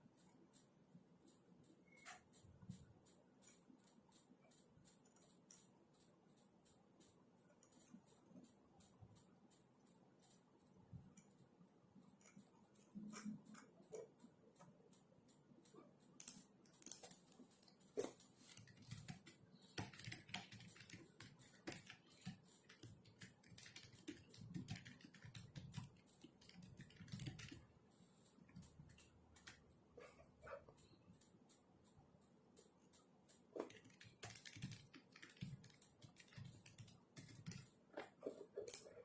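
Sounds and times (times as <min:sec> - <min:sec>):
keyboard typing clicks: 0:12.1 - 0:39.0.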